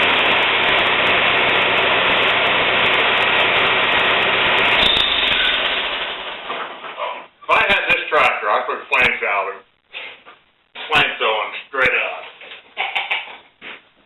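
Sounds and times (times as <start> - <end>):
motor running: 0.0 - 6.4.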